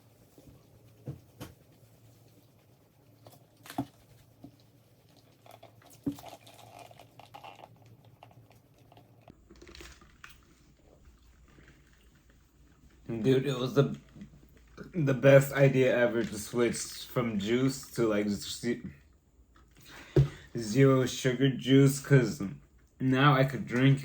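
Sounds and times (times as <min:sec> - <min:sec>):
chewing food: 0:03.1 - 0:13.1.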